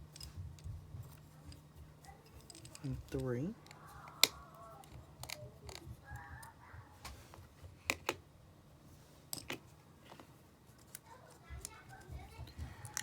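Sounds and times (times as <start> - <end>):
small tool clicks and taps: 2.4 - 6.5.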